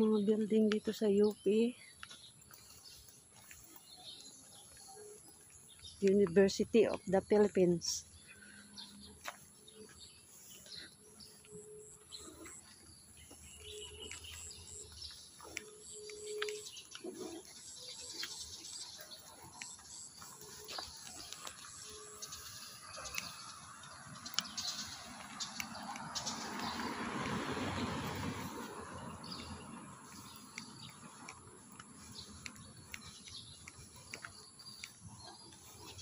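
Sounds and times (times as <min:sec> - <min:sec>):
high bird chirps: 0:08.0 - 0:26.9.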